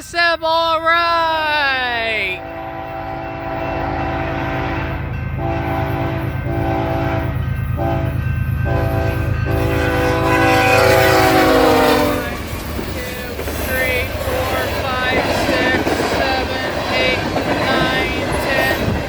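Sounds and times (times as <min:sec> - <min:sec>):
passing train rumble: 0:00.2 - 0:19.0
locomotive air horn blasts: 0:02.4 - 0:12.4.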